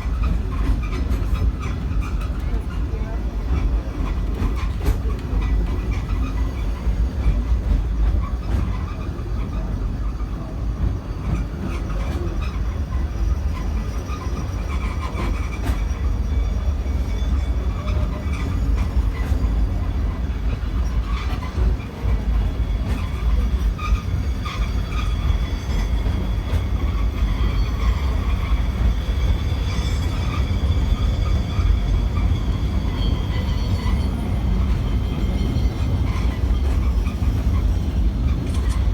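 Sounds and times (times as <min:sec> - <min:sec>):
tram clicks: 0:00.0 - 0:38.9
tram wheels rumbling on rail: 0:00.0 - 0:38.9
faint high squeals: 0:11.2 - 0:38.9.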